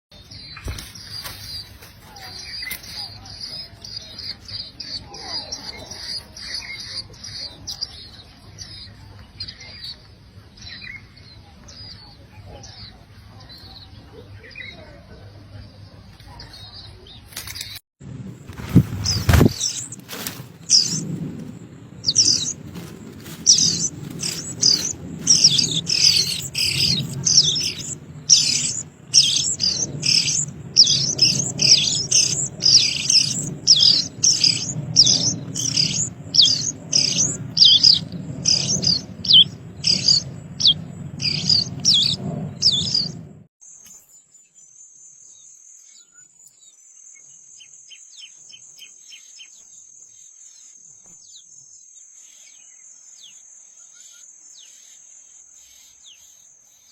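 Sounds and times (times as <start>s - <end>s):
bird chirping: 0.1s - 17.8s, 18.4s - 56.9s
low background rumble: 18.0s - 43.5s.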